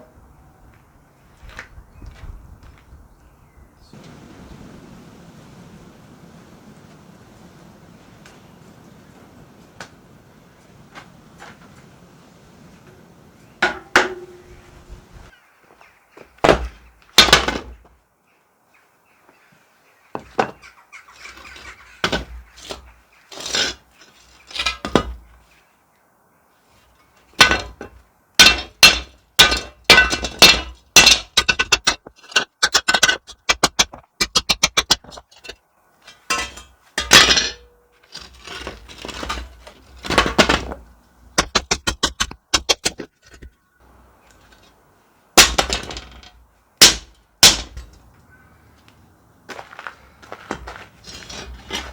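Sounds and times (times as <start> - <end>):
knocks and clinks on metal: 13.6 - 14.5, 27.4 - 43.5, 45.4 - 48.1.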